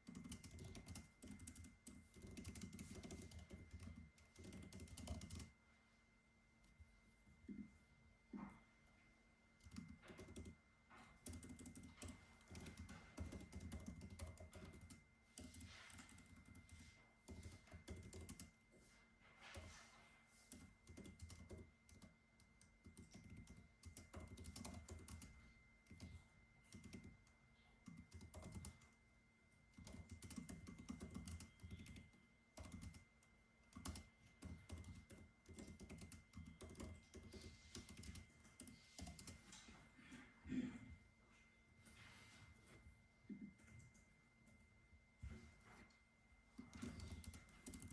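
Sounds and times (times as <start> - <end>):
typing on computer keyboard: 0.0 - 5.5, 9.6 - 18.6, 20.5 - 29.0, 29.7 - 39.5, 46.6 - 47.9
faint steady high hum: 0.0 - 47.9.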